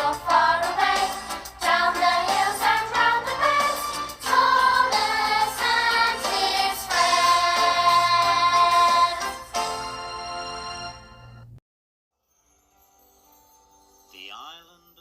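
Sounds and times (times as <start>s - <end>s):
group of voices singing: 0.0s - 9.4s.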